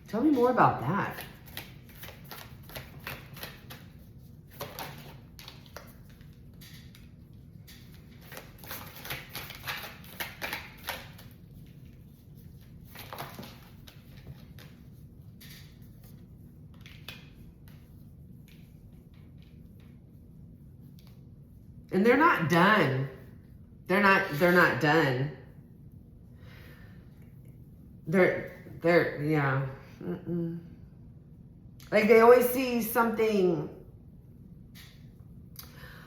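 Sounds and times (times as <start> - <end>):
cards being shuffled: 1.1 - 20.0.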